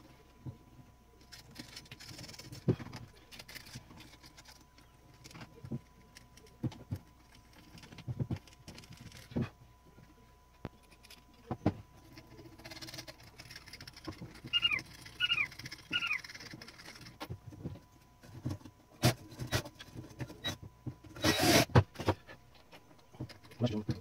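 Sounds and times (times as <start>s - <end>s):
high falling chirps: 14.5s - 16.3s.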